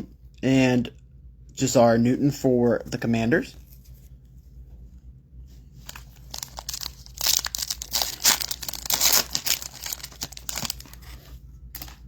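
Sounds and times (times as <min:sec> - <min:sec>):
foil wrapper tearing and crinkling: 0:05.8 - 0:12.0.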